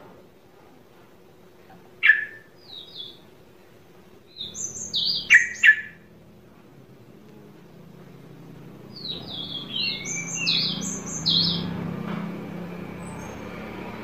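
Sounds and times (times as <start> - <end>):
bird chirping: 2.0 - 3.2, 4.3 - 6.1, 8.9 - 11.9, 12.8 - 14.0.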